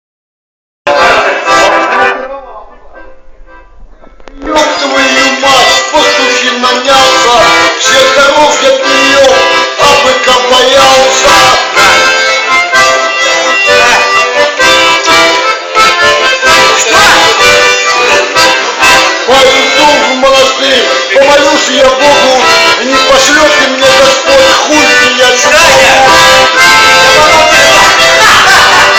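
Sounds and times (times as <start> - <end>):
accordion playing a tune: 0.9 - 28.9.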